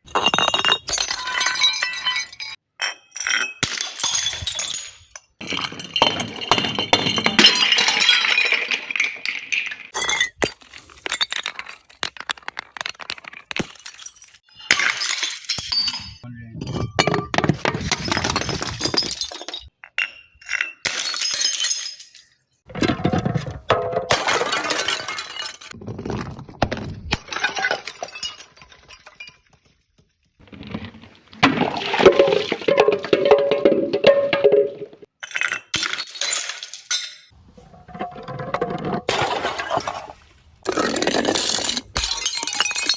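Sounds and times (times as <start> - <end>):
glass bottles smashing: 0.0 - 22.6, 23.7 - 25.8, 27.1 - 29.7, 31.5 - 37.4, 39.1 - 40.1, 40.7 - 42.9
glass shards clinking: 13.7 - 16.2, 17.9 - 22.5, 35.8 - 37.3.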